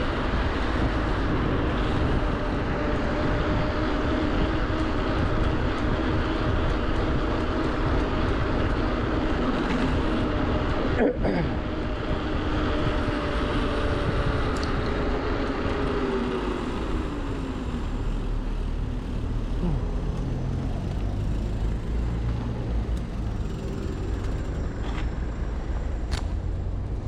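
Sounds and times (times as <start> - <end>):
wind rush: 0.0 - 17.8
road traffic: 0.0 - 27.0.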